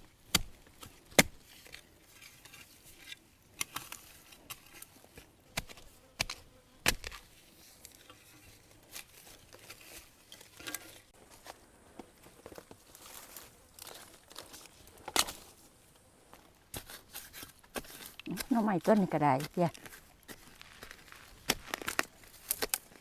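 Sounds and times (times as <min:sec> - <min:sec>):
dry leaves and twigs snapping underfoot: 0:06.3 - 0:15.7, 0:17.9 - 0:23.0
light rustling of leaves: 0:07.0 - 0:23.0.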